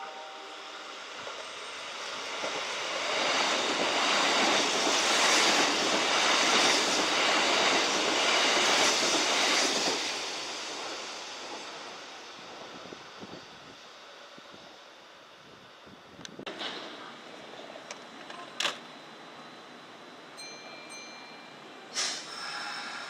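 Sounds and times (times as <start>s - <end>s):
electric train passing: 0.0s - 18.1s, 18.8s - 23.0s.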